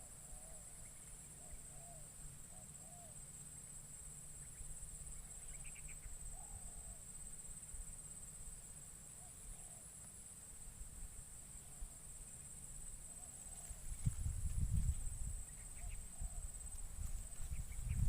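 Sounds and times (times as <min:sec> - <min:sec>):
small bird chirping: 0:04.3 - 0:07.0, 0:15.4 - 0:18.0
dove cooing: 0:09.2 - 0:09.9, 0:13.1 - 0:13.9, 0:15.7 - 0:16.5.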